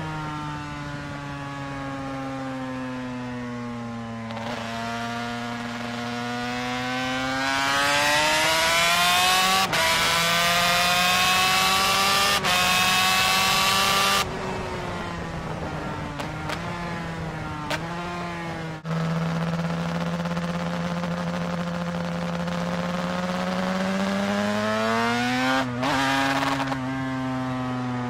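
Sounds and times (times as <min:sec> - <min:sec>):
two-stroke racing engine revving: 0:04.3 - 0:14.2, 0:17.7 - 0:26.9.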